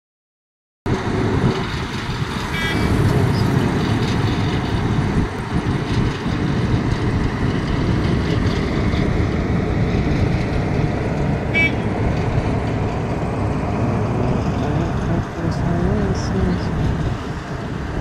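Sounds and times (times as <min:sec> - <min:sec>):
heavy machinery rumbling: 0:00.9 - 0:18.0
short horn toot: 0:11.5 - 0:11.9.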